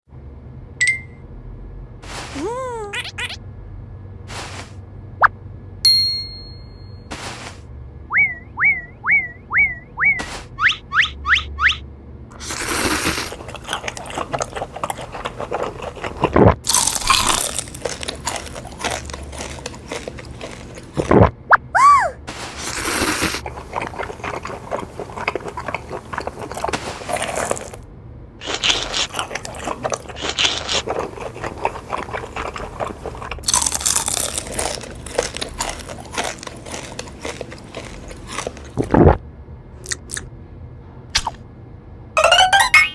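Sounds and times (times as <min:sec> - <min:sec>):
crunchy chewing of food: 0:04.3 - 0:04.8, 0:12.3 - 0:21.4, 0:22.3 - 0:27.8, 0:28.4 - 0:39.2.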